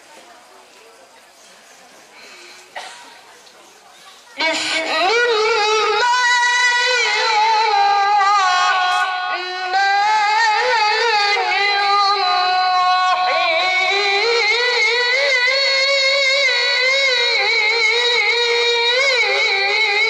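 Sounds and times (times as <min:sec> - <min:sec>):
child reciting melodically: 0:04.0 - 0:20.0.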